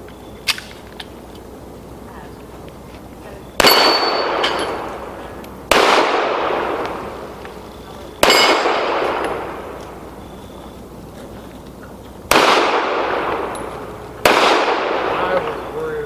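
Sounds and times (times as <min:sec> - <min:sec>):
pistol shots echoing: 0:03.5 - 0:11.0, 0:12.2 - 0:16.0.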